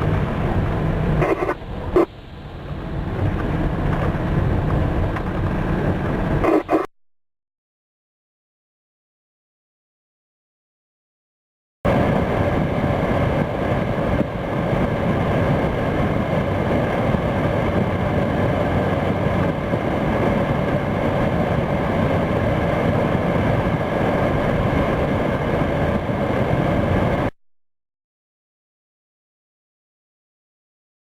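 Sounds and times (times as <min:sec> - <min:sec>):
vehicle engine drone: 0:00.0 - 0:06.9, 0:11.9 - 0:27.4.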